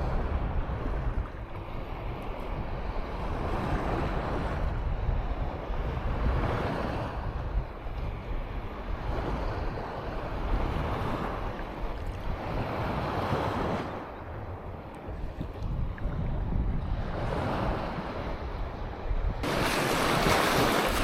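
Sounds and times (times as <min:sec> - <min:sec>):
wind rumbling on microphone: 0:00.0 - 0:21.0
surf washing onto beach: 0:19.4 - 0:21.0.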